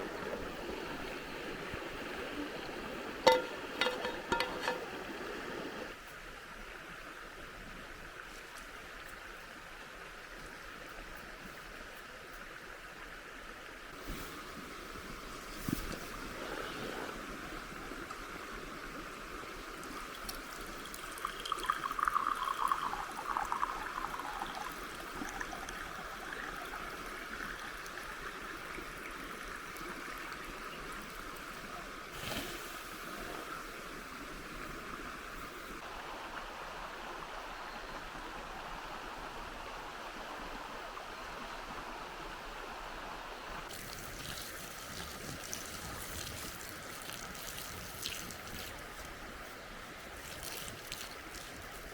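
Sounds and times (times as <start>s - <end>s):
river water flowing: 0.0s - 51.9s.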